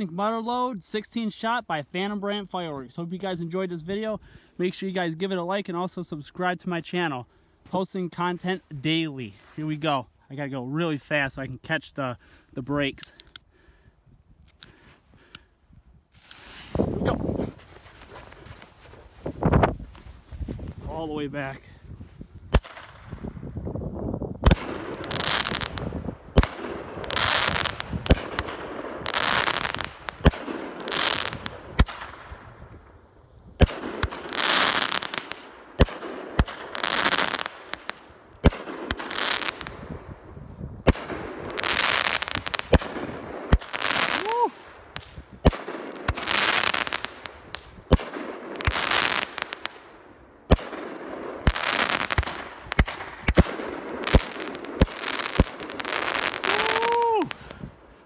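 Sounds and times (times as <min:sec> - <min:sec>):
firework crackling: 0:24.4 - 0:32.4, 0:33.6 - 0:39.9, 0:40.9 - 0:57.7
firework bangs: 0:24.4 - 0:32.5, 0:33.6 - 0:40.0, 0:40.8 - 0:49.8, 0:50.5 - 0:57.6.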